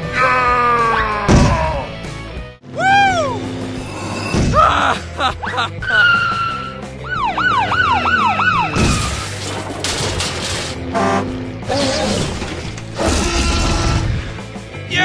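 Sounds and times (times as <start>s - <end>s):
warbling siren-like tone: 6.5s - 9.1s
loud noisy crashes: 8.8s - 10.8s.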